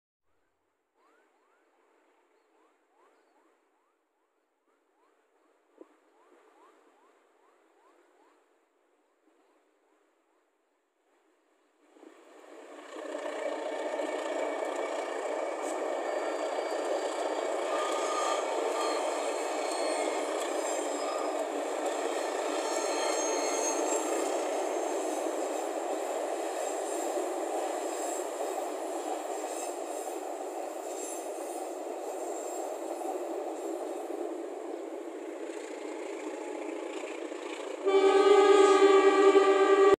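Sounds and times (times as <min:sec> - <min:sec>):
train wheels rattling on bridge: 0:12.8 - 0:34.3.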